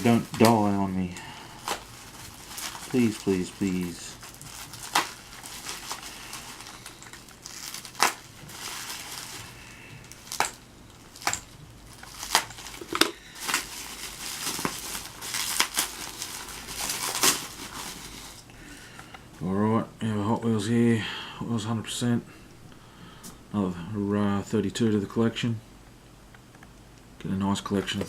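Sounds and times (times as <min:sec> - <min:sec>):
packaging crinkling and crackling: 0:00.0 - 0:18.5.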